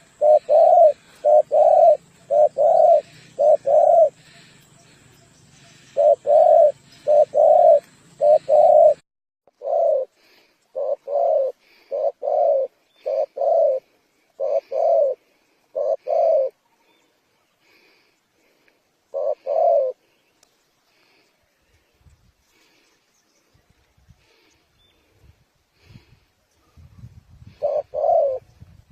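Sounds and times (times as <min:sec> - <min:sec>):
dove cooing: 0:00.0 - 0:16.7, 0:18.5 - 0:20.1, 0:25.8 - 0:28.5.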